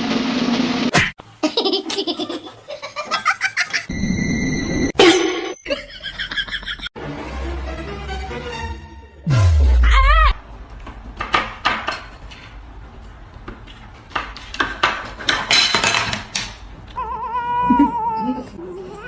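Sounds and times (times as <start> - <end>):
objects clattering and clinking: 13.8 - 16.6.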